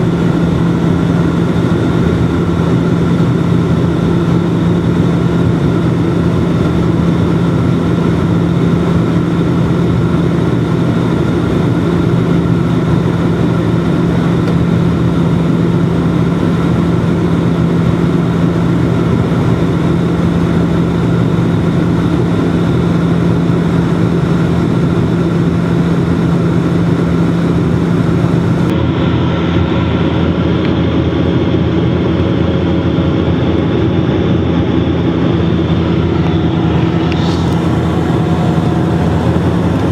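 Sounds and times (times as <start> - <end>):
turboprop engines droning: 0.0 - 39.9
higher hums: 35.7 - 39.9.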